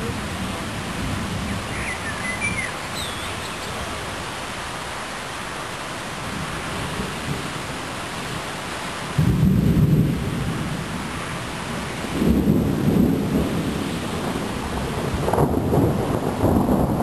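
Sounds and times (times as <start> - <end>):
steady rain hiss: 0.0 - 17.0
thunder rumbling: 9.1 - 17.0.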